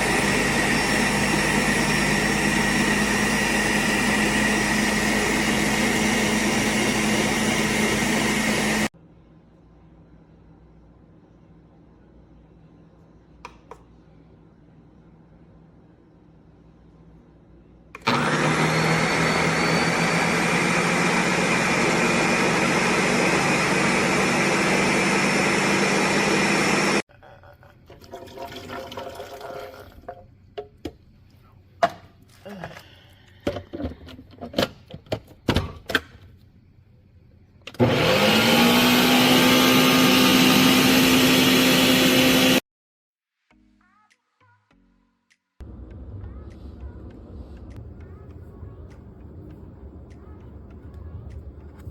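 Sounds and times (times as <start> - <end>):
blender motor running: 0.0 - 8.9, 18.0 - 27.0, 37.8 - 42.6.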